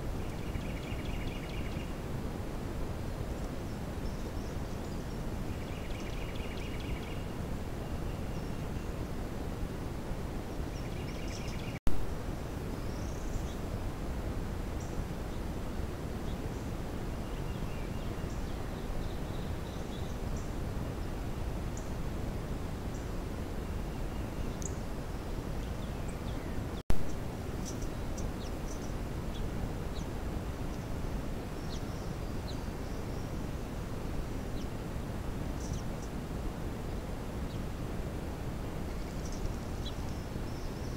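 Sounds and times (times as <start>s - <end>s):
low background noise: 0.0s - 40.9s
small birds chirping: 0.2s - 2.1s, 3.0s - 9.2s, 10.4s - 11.8s, 14.7s - 20.6s, 22.9s - 36.2s, 38.8s - 40.9s.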